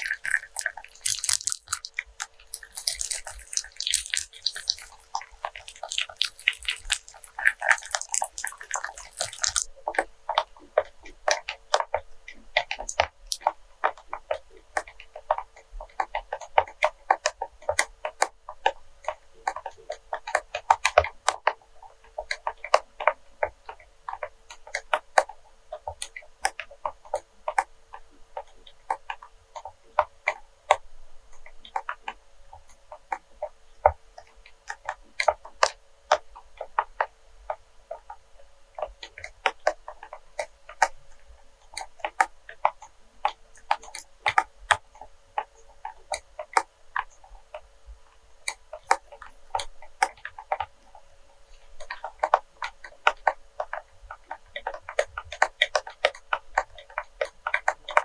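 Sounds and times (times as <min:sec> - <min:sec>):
faint steady hum: 0:00.0 - 0:15.9.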